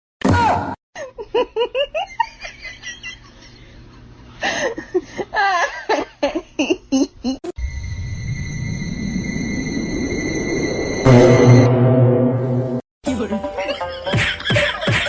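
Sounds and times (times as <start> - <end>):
person laughing in bursts: 4.5 - 7.5, 13.7 - 15.0
short loud noise: 11.0 - 12.8.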